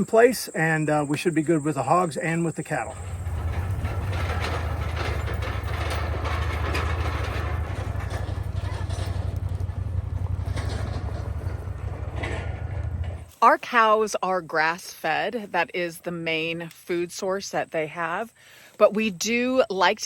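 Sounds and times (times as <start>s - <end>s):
vehicle engine rumbling: 0.0s - 13.6s
road noise: 0.0s - 14.4s
rattling: 2.8s - 13.3s.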